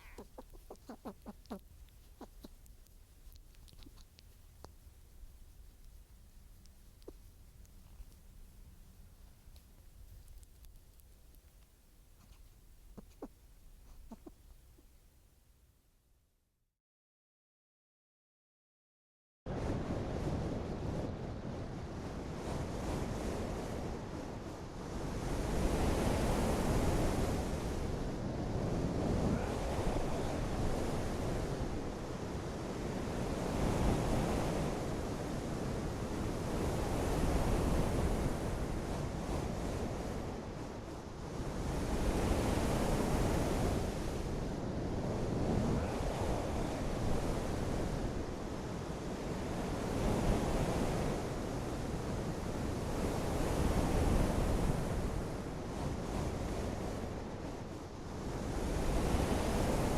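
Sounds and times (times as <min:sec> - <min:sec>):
wind or surf rushing: 0:19.5 - 0:59.9.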